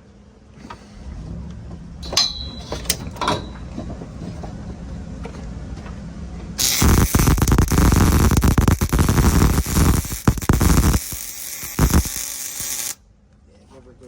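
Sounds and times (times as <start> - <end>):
light metal clinks: 2.0 - 3.7
welding arc crackling: 6.6 - 13.0.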